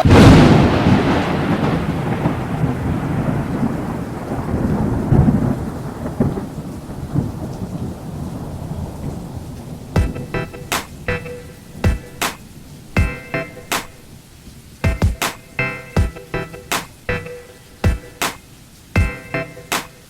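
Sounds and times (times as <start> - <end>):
thunder: 0.0 - 11.1
rain hissing: 0.0 - 20.0.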